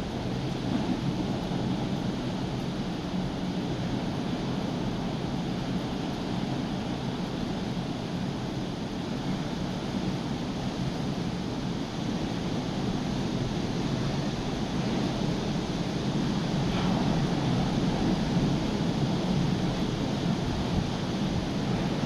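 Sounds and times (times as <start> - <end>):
wind blowing on microphone: 0.0 - 22.0
heavy surf breaking on beach: 11.0 - 22.0.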